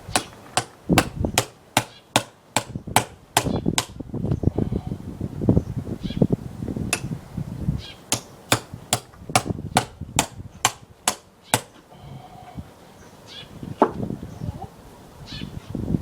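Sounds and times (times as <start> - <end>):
hammer striking chisel into log: 0.1 - 4.0, 6.9 - 7.2, 8.1 - 11.8.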